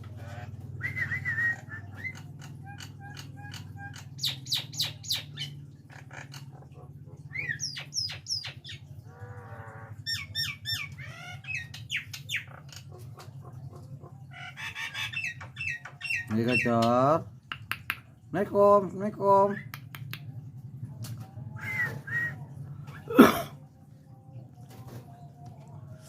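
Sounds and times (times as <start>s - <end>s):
myna whistles and squawks: 0.3s - 2.2s.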